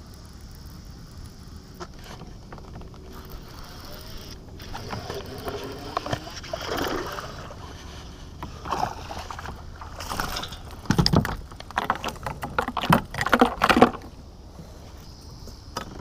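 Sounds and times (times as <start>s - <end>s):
gear knocking and rattling in kayak: 1.8s - 3.5s, 4.4s - 14.2s.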